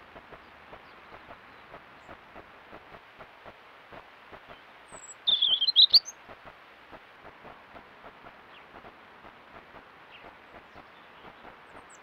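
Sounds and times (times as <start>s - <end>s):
faint steady hiss: 0.0s - 12.0s
bird calling loudly: 5.0s - 6.1s.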